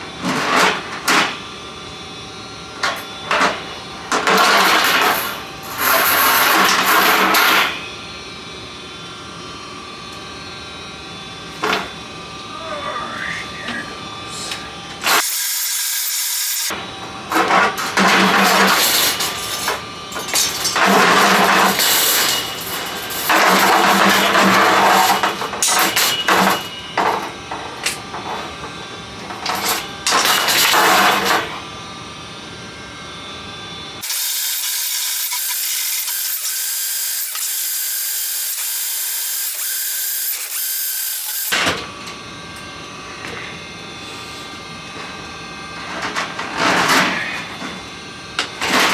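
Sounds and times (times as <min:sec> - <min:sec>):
drain-cleaning machine running: 0:10.0 - 0:31.8, 0:33.9 - 0:48.9.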